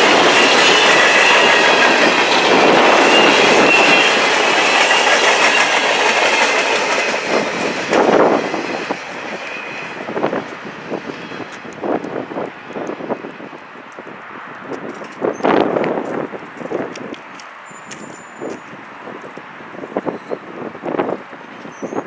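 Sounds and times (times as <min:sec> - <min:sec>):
train wheels clacking on rails: 0:00.0 - 0:10.6
high ringing from wheels: 0:17.6 - 0:19.0.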